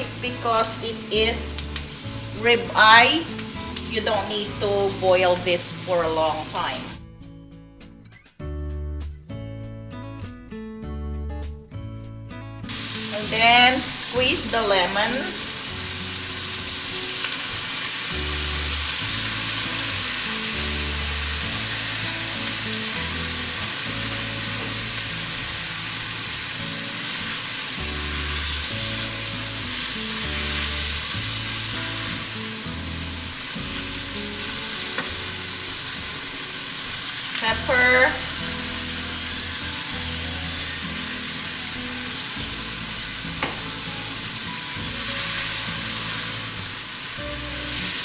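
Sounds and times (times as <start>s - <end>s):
meat and onion sizzling in a pan: 0.0s - 7.0s, 12.7s - 48.0s
background music with bass line: 0.0s - 17.1s, 37.4s - 48.0s.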